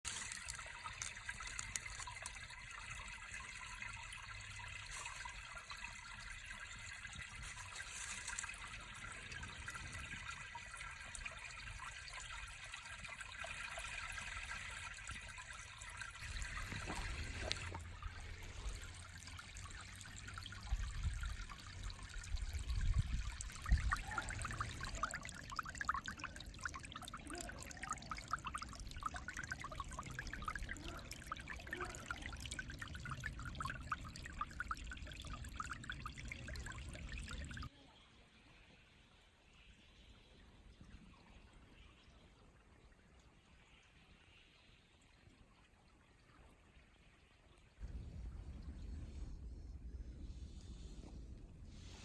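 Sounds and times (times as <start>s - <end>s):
low rumbles: 47.8s - 51.7s.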